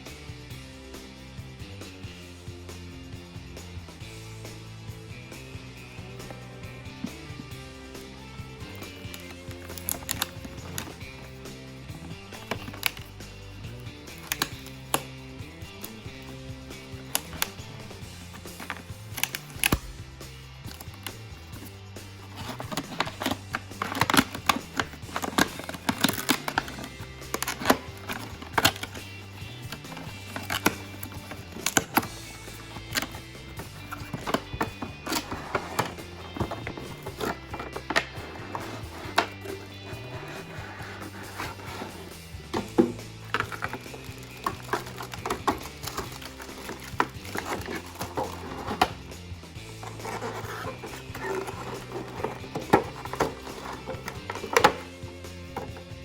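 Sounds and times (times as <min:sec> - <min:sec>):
background music with bass: 0:00.0 - 0:56.0
handling clicks and knocks: 0:08.6 - 0:56.0
packaging crinkling: 0:08.9 - 0:11.3, 0:22.2 - 0:49.1, 0:49.7 - 0:55.0.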